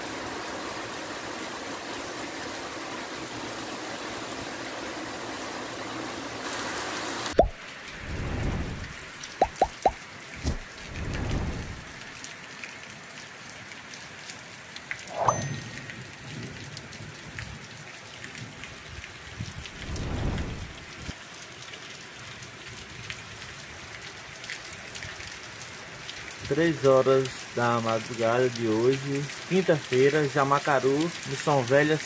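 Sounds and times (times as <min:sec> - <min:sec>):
steady rain: 0:00.0 - 0:32.0
thunder rumbling: 0:07.4 - 0:12.0, 0:19.5 - 0:21.1.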